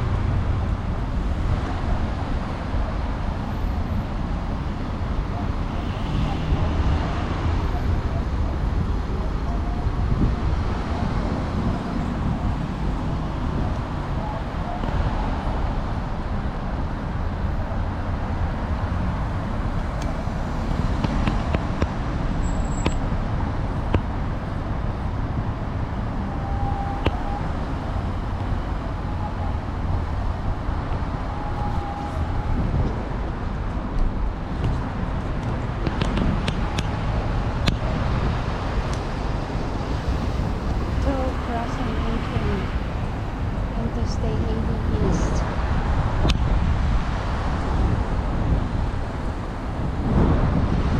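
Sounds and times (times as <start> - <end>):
city traffic rumble: 0.0 - 50.9.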